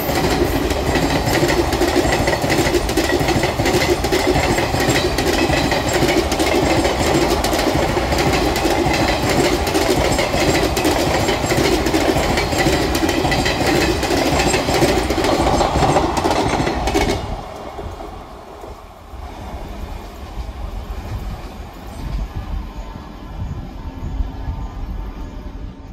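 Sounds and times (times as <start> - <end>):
train wheels clattering over rail joints: 0.0 - 18.0.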